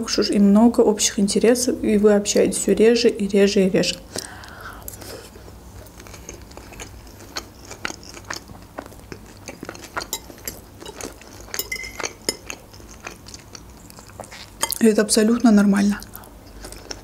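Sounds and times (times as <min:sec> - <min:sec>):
chewing and crunching salad: 0:03.9 - 0:17.0
fork clinking against glass dish: 0:09.6 - 0:13.0.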